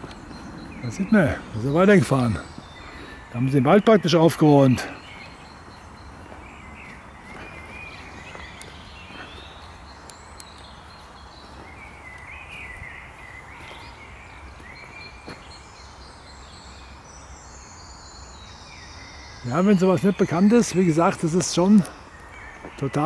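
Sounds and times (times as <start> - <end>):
footsteps on forest floor: 0.0 - 15.8
woodland birds singing: 0.0 - 23.0.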